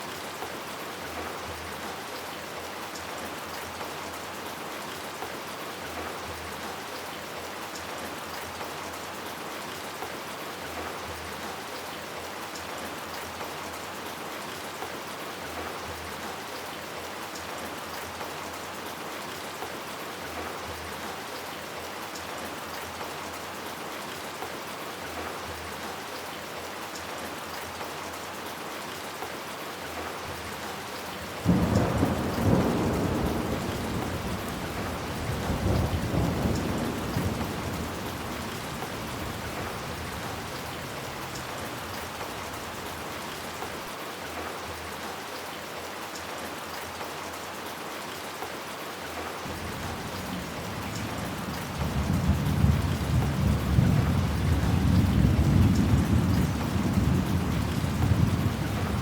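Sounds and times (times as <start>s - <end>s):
heavy rain falling: 0.0s - 59.0s
thunderclap rumbling: 31.4s - 41.4s.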